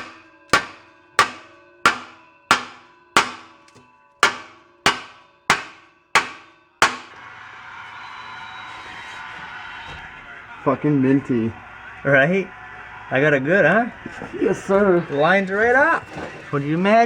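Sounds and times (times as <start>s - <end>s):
hammer striking metal pipe: 0.0s - 7.2s.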